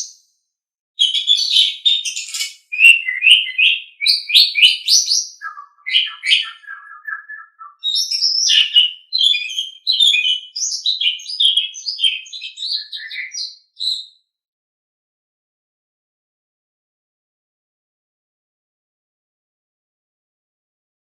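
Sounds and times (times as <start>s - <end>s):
starling singing: 1.0s - 14.1s.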